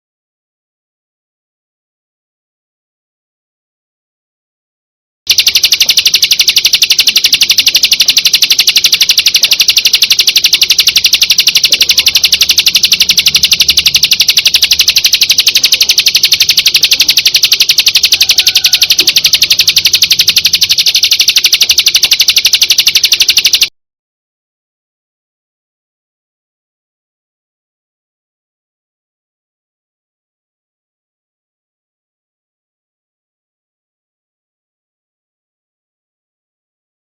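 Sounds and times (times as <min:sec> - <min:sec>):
fast chirping bird trill: 0:05.3 - 0:23.7.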